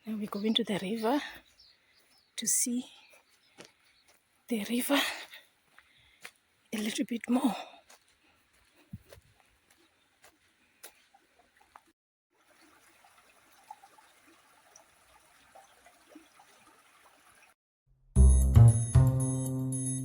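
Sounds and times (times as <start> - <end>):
small stream trickling: 9.4 - 17.6.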